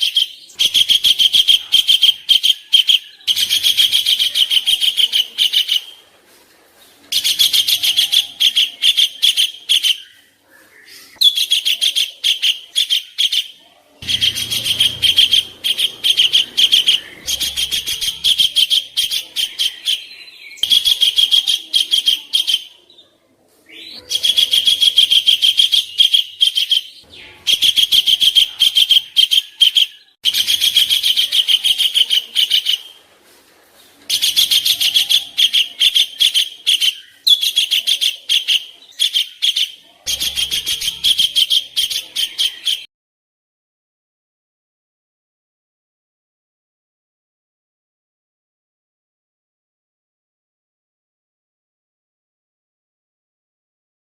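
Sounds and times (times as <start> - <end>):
songbird harsh chattering call: 14.0 - 22.5.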